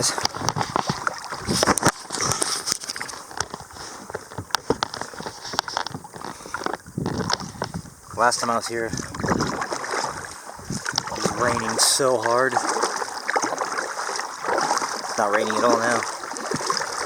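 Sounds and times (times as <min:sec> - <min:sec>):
water sloshing against hull: 0:00.0 - 0:17.0
small knocks and clicks: 0:00.2 - 0:07.8.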